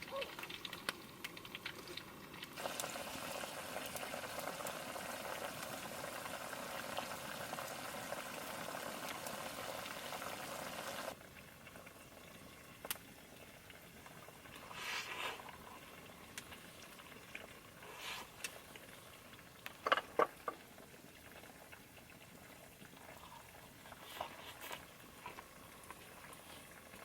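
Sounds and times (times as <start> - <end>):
sausage sizzling in hot oil: 0.0 - 20.1.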